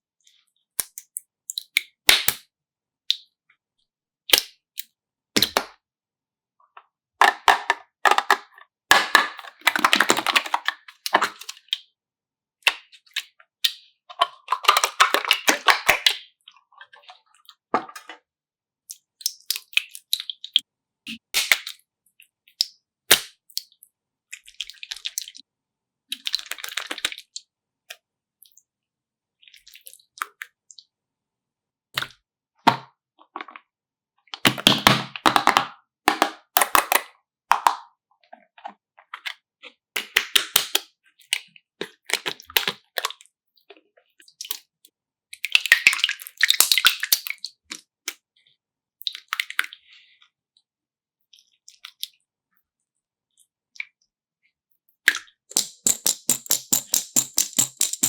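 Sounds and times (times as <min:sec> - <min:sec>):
rapid crisp clicks and crackles: 0:55.5 - 0:58.0.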